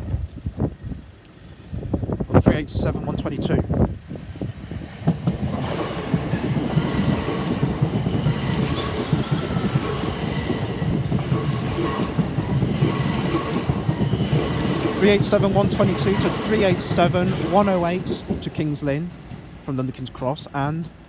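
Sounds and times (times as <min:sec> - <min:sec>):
train wheels rumbling on rails: 0:00.0 - 0:21.0
rapid clicking over track: 0:04.9 - 0:19.9.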